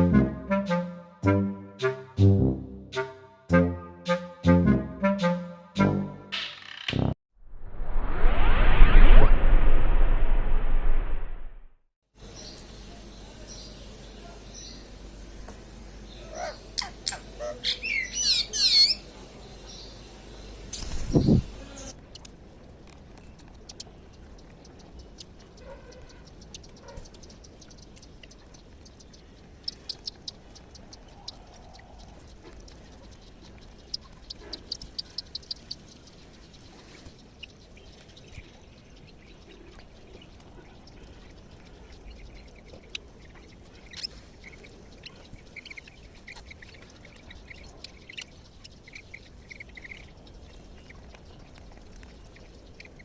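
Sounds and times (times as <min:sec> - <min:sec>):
faint steady background noise: 0:12.1 - 0:53.0
bird chirps: 0:23.2 - 0:53.0.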